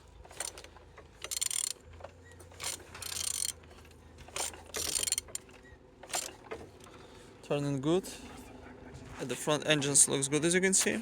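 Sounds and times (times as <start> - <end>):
engine turned over by hand rasping: 0.0 - 6.8.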